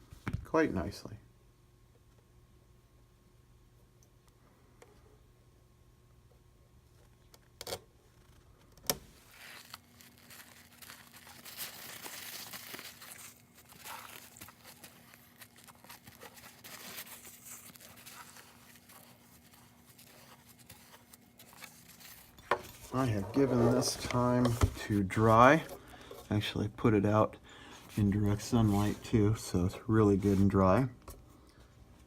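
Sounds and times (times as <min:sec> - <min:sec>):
rustling and crinkling: 0:06.9 - 0:26.6, 0:27.8 - 0:32.0.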